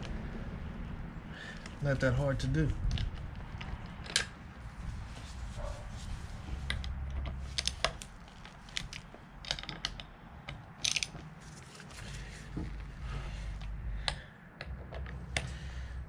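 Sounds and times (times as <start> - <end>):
low steady hum: 0.0 - 16.0
hand tools clicking and tapping: 6.6 - 11.4, 13.4 - 15.6.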